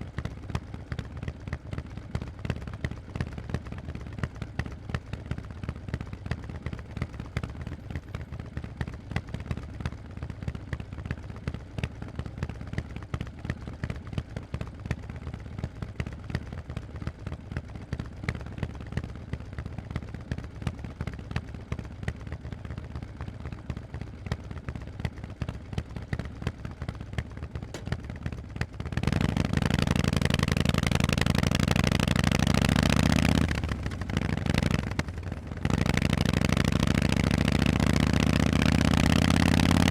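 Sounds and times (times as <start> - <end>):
motorcycle engine idling: 2.7 - 9.1, 25.2 - 39.9
motorcycle engine revving loudly: 27.7 - 28.0, 29.0 - 39.9.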